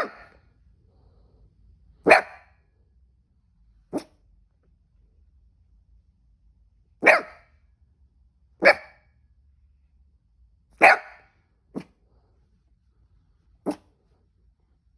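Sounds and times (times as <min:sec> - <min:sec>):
dog barking: 0:00.0 - 0:00.4, 0:02.0 - 0:02.7, 0:03.9 - 0:04.2, 0:07.0 - 0:07.5, 0:08.6 - 0:09.1, 0:10.8 - 0:12.0, 0:13.6 - 0:14.0.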